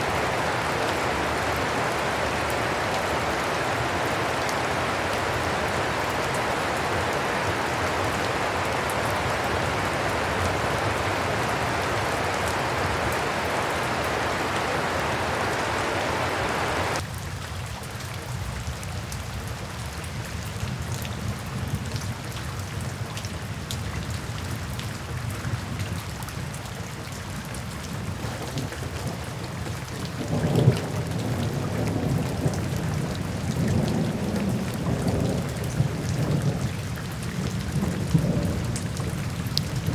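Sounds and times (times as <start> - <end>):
loud thunder clap: 0.0 - 17.0
thunder rumbling: 0.0 - 17.0, 37.3 - 39.9
steady rain falling: 0.0 - 39.9.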